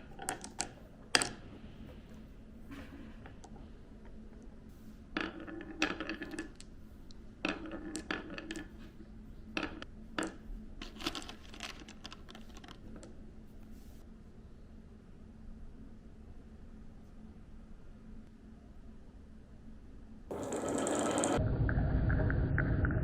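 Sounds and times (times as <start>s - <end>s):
balls clattering down marble run: 5.2s - 6.7s, 7.4s - 8.8s, 20.3s - 21.4s.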